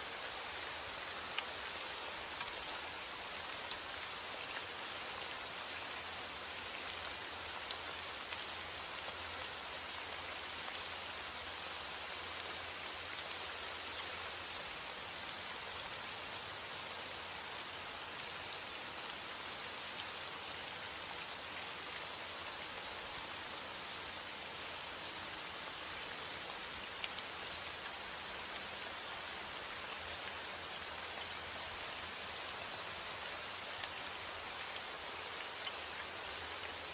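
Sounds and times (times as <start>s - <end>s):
raindrops ticking on a surface: 0.2s - 36.9s.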